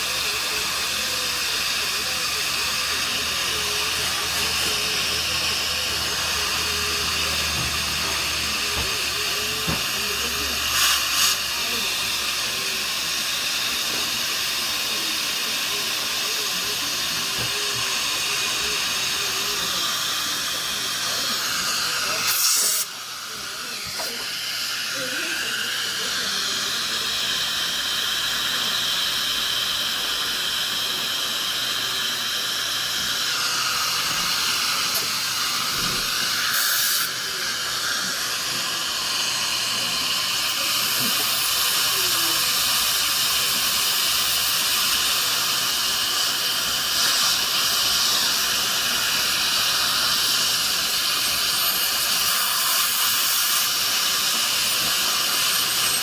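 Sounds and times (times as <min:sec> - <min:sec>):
high-pitched dental drill whine: 0:00.0 - 0:56.0.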